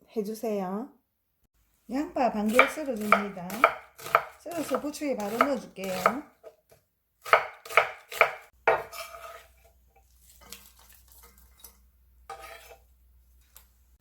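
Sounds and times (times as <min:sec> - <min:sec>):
knife chopping on cutting board: 0:02.5 - 0:06.3, 0:07.2 - 0:09.4.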